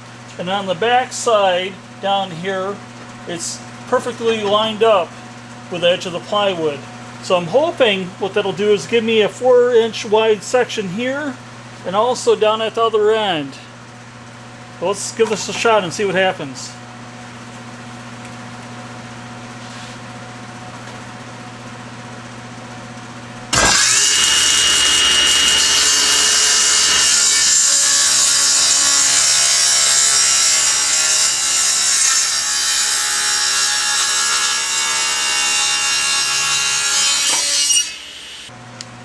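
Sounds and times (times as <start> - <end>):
machine hum: 23.4 - 31.6
table saw cutting wood: 23.5 - 38.5.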